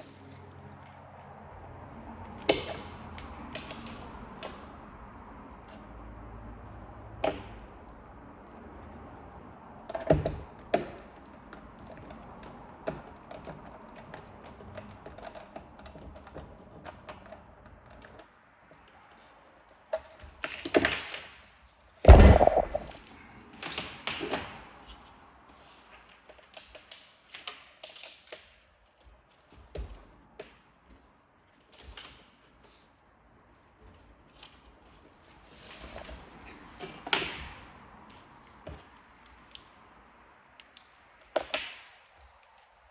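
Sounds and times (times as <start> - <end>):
heavy thunk: 22.1 - 23.0.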